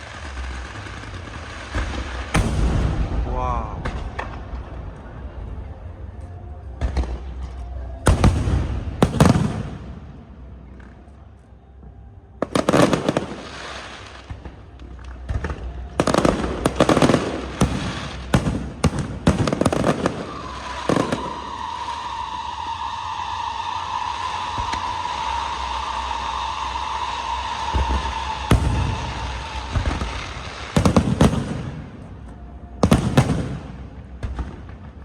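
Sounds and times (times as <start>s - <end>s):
rapid firework crackling: 0.0s - 5.4s, 12.4s - 32.2s
firework bangs: 0.0s - 11.1s, 12.4s - 35.0s.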